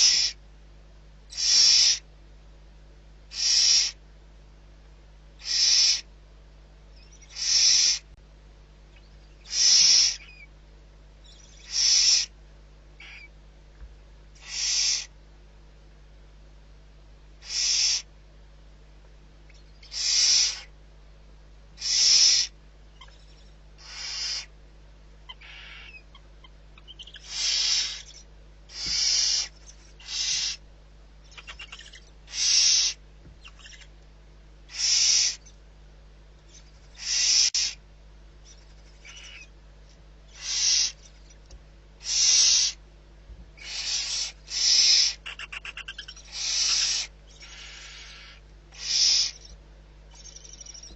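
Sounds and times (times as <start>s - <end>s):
barn owl screeching: 0.0s - 0.4s, 1.3s - 2.1s, 3.3s - 4.0s, 5.4s - 6.1s, 6.9s - 8.1s, 9.0s - 10.5s, 11.2s - 12.4s, 13.0s - 13.4s, 14.4s - 15.1s, 17.4s - 18.1s, 19.5s - 20.8s, 21.8s - 24.6s, 25.3s - 30.6s, 31.2s - 34.0s, 34.7s - 35.6s, 36.5s - 37.8s, 38.4s - 39.6s, 40.3s - 41.4s, 42.0s - 42.8s, 43.6s - 50.9s
owl rapid rattle: 0.0s - 0.4s, 1.3s - 2.0s, 3.3s - 4.0s, 5.4s - 6.1s, 7.0s - 8.1s, 9.4s - 10.5s, 11.2s - 12.3s, 14.4s - 15.1s, 17.4s - 18.1s, 19.5s - 20.7s, 21.8s - 24.5s, 25.3s - 30.6s, 31.3s - 33.9s, 34.7s - 35.5s, 36.5s - 37.8s, 38.4s - 39.5s, 40.3s - 42.8s, 43.6s - 50.9s.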